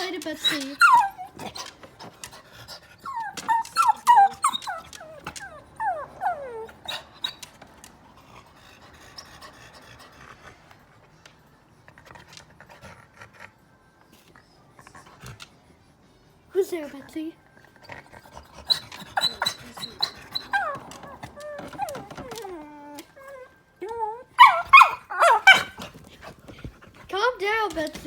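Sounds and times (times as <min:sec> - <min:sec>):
dog panting: 0:00.0 - 0:28.0
dog whining: 0:00.3 - 0:01.7, 0:03.0 - 0:07.6, 0:17.9 - 0:25.9.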